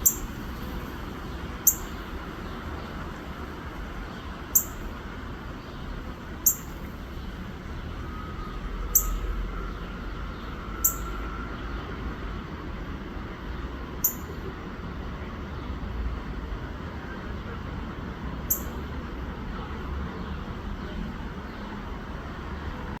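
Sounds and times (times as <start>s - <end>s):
bird chip notes: 0.0s - 0.4s, 1.6s - 2.0s, 4.6s - 4.9s, 6.4s - 6.8s, 8.4s - 9.3s, 10.8s - 11.2s, 14.0s - 14.4s
steady low rumble: 0.0s - 21.7s.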